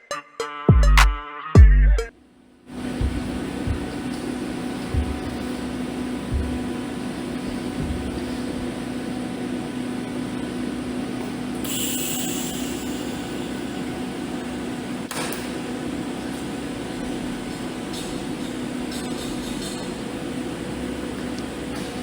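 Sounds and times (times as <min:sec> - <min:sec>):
electrical hum: 0:01.6 - 0:22.0.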